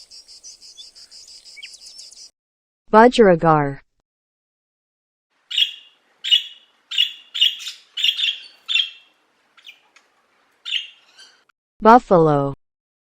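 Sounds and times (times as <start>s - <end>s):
budgerigar chirping: 0.0s - 2.3s, 5.5s - 9.9s, 10.6s - 11.4s.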